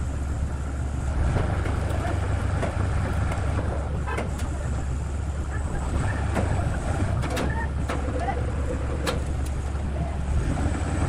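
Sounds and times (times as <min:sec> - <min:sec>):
low machine rumble: 0:00.0 - 0:11.0
sharp clicks and knocks: 0:01.3 - 0:04.8, 0:06.2 - 0:09.8.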